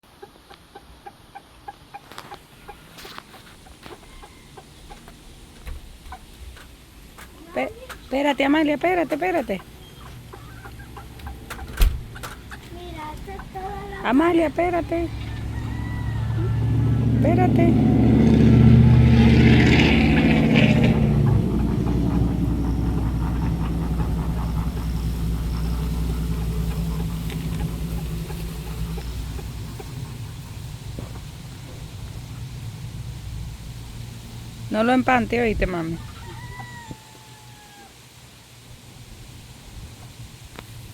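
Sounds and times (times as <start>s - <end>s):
engine drone: 8.2s - 36.6s
loud noisy sounds: 14.0s - 35.6s.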